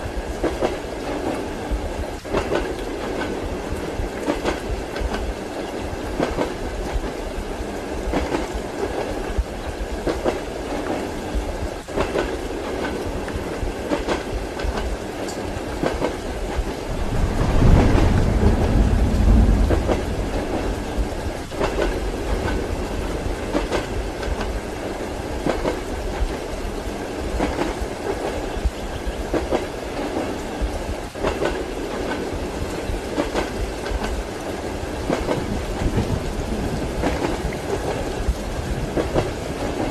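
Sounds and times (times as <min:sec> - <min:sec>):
rain: 0:00.0 - 0:39.9
train carriage rumble: 0:00.0 - 0:39.9
thunder rumble: 0:15.6 - 0:26.4, 0:35.0 - 0:39.9.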